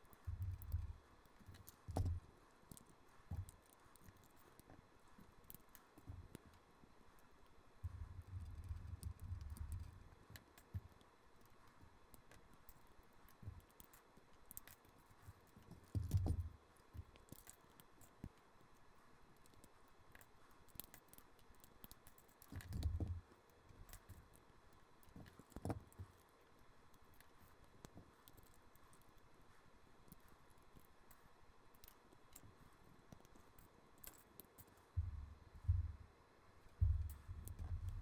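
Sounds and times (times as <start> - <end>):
dull thumps: 35.0 - 36.1, 36.8 - 38.0.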